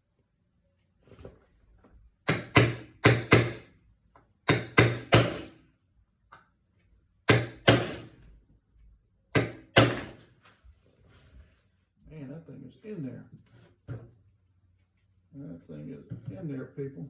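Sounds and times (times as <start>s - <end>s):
hammer striking metal punch: 2.3s - 3.7s, 4.5s - 5.6s, 7.3s - 8.2s, 9.4s - 10.2s.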